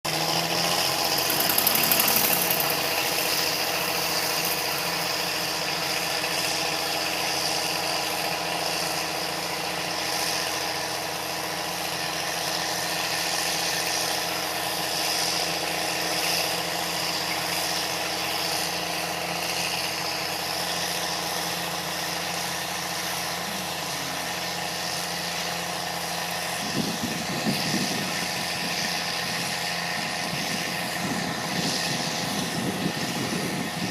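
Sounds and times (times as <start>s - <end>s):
heavy diesel engine running: 0.0s - 33.9s
rattles: 0.2s - 5.6s.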